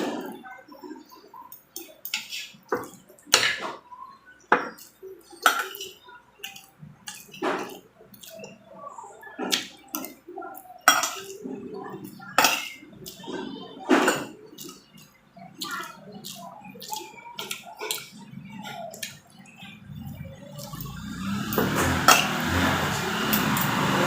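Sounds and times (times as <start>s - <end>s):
chewing and mouth sounds: 14.6s - 22.7s.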